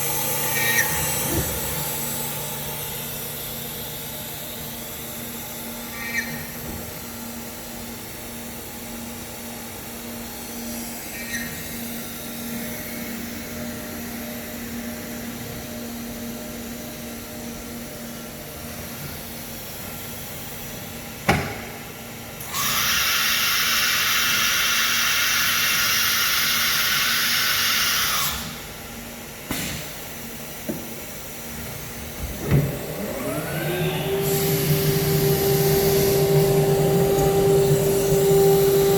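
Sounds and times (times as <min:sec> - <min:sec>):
machine hum: 0:00.0 - 0:19.9, 0:31.2 - 0:38.9
rising machine whine: 0:32.4 - 0:38.9
loud air hiss: 0:34.1 - 0:38.9.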